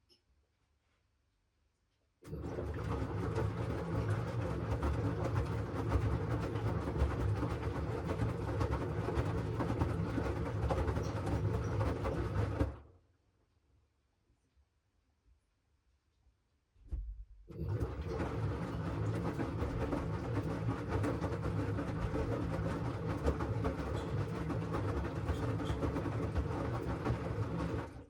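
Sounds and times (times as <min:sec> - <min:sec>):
washing machine rumbling: 0:02.3 - 0:12.8, 0:17.5 - 0:28.0.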